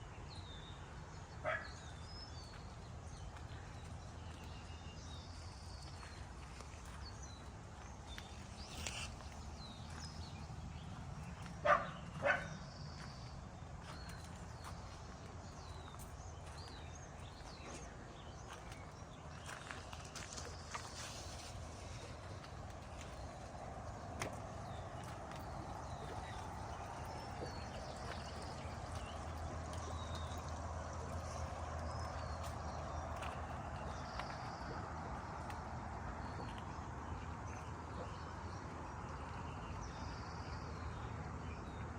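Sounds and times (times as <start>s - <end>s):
dog barking: 1.4s - 1.7s, 11.6s - 12.6s.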